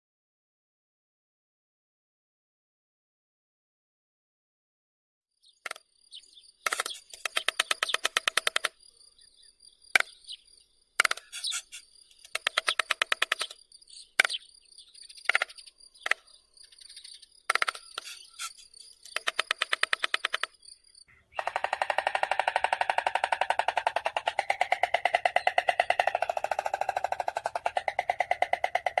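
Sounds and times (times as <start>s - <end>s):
stork bill clattering: 6.6s - 8.8s, 11.0s - 13.6s, 17.5s - 20.6s, 21.4s - 29.0s.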